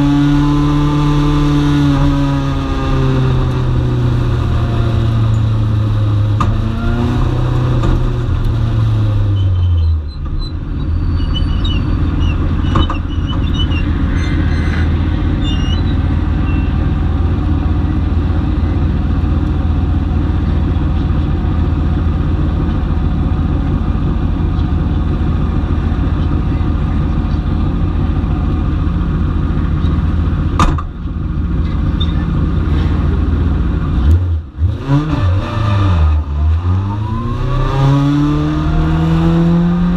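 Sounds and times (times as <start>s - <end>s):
race car engine running: 0.0s - 9.4s, 10.1s - 39.9s
sharp knock: 30.6s - 31.0s.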